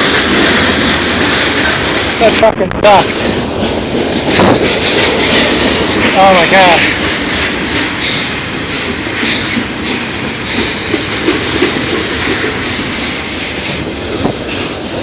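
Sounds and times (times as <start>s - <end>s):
train wheels rumbling on rails: 0.0s - 15.0s
high wheel squeals: 12.9s - 13.5s.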